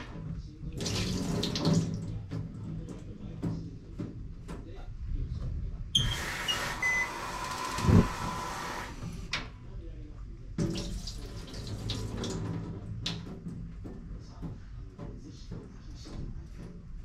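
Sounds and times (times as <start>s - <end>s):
tap running into a sink: 0.0s - 4.1s, 10.6s - 14.6s.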